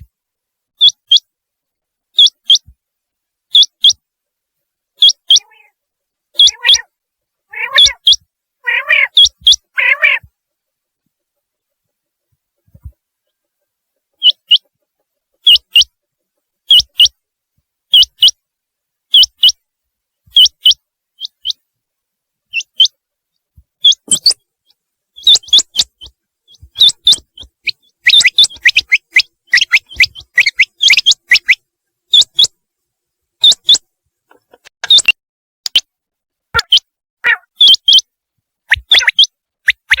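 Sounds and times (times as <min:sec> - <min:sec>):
quail calling: 0:02.2 - 0:02.7, 0:03.5 - 0:04.0, 0:05.0 - 0:10.3, 0:14.1 - 0:14.8, 0:15.4 - 0:15.9, 0:16.7 - 0:17.2, 0:20.3 - 0:21.6, 0:22.5 - 0:23.0, 0:23.8 - 0:24.4, 0:25.2 - 0:32.6, 0:33.4 - 0:35.1, 0:36.6 - 0:38.1, 0:38.7 - 0:40.0.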